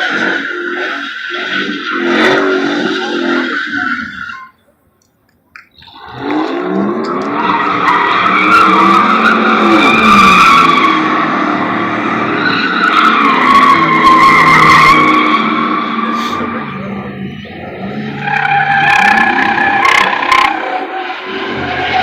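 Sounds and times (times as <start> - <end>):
tires squealing: 0.0 - 4.6, 5.7 - 22.0
engine revving: 5.8 - 22.0.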